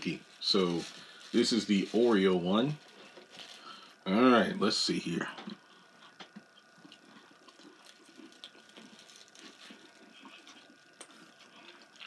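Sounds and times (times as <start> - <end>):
faint steady hum: 0.0 - 12.0
chewing a cookie: 5.4 - 12.0.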